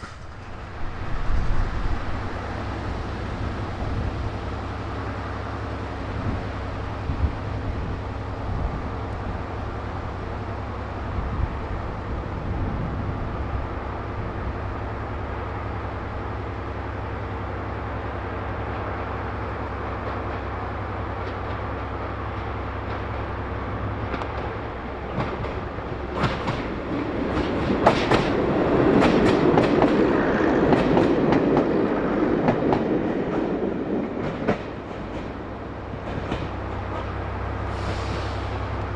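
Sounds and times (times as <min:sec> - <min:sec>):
train engine drone: 0:00.0 - 0:38.9
wheels clicking over rail joints: 0:24.0 - 0:37.2.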